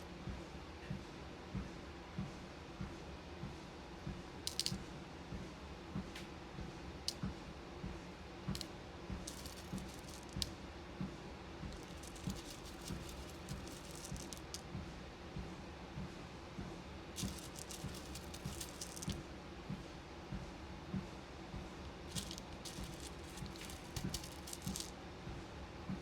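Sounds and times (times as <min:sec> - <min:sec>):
beads clicking and rattling: 0:04.5 - 0:04.8, 0:09.2 - 0:10.5, 0:11.7 - 0:14.6, 0:17.2 - 0:19.2, 0:22.1 - 0:24.9.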